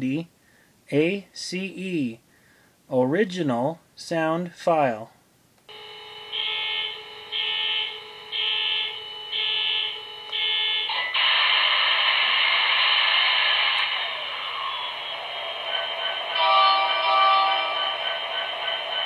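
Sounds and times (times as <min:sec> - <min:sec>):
model locomotive hum: 0:05.7 - 0:19.0
steady drone: 0:05.7 - 0:19.0
loud rushing hiss: 0:11.0 - 0:17.0.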